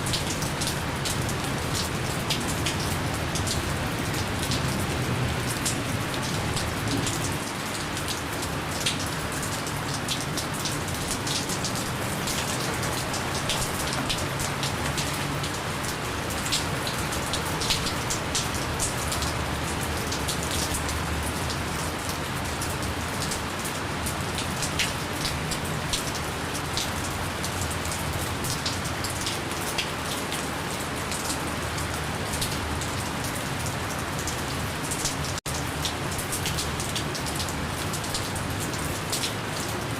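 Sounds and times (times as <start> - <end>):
gentle rain falling: 0.0 - 39.9
raindrop ticks: 0.1 - 23.4.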